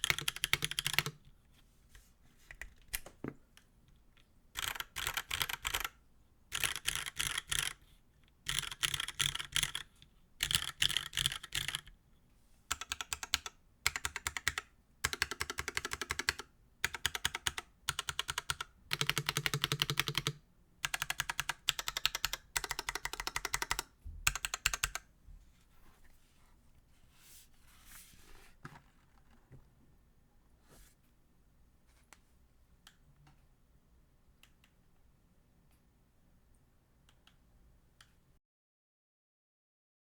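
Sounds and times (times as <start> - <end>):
mechanical keyboard typing: 0.0 - 1.2, 4.6 - 7.8, 8.5 - 11.9, 12.7 - 25.1.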